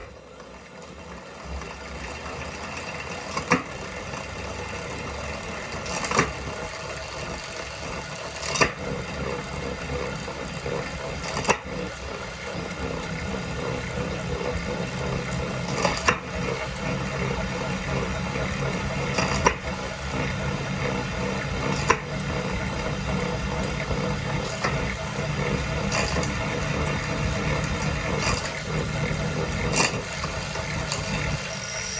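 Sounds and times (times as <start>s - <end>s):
bike trainer low rumble: 0.0s - 31.9s.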